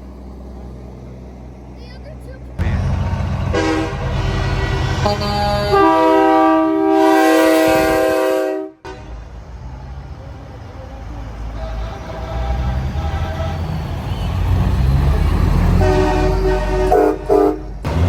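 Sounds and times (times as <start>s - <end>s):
low engine rumble: 0.0s - 18.0s
train air horn chord: 3.5s - 9.2s, 15.7s - 17.8s.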